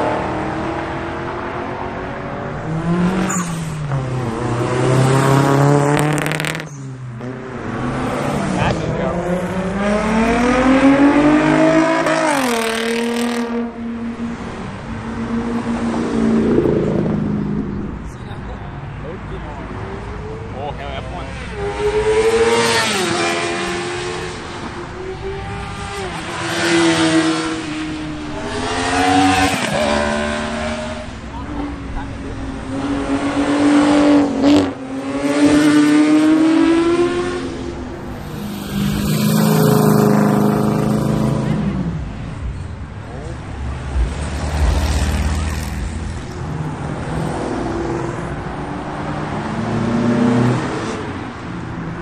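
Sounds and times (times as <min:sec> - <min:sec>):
car engine accelerating: 0:19.5 - 0:51.2.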